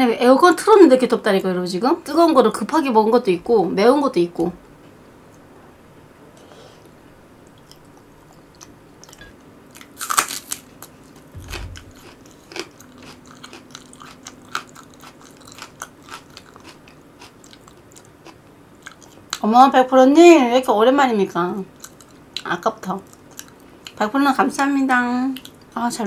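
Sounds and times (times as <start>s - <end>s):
person chewing food: 7.5s - 19.4s, 21.8s - 22.4s, 23.0s - 24.0s
brief low thump: 11.3s - 12.0s.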